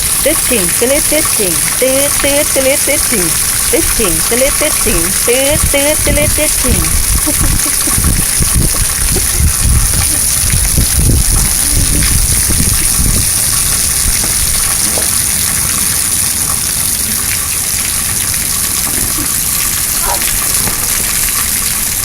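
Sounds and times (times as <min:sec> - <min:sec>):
heavy rain falling: 0:00.0 - 0:22.0
low rumbling: 0:05.0 - 0:14.7.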